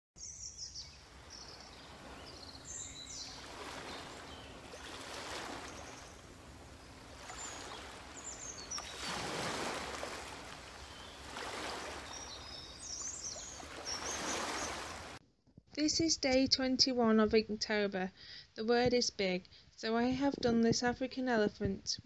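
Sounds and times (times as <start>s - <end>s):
small birds chirping: 0.2s - 15.2s
running water rushing: 0.9s - 15.2s.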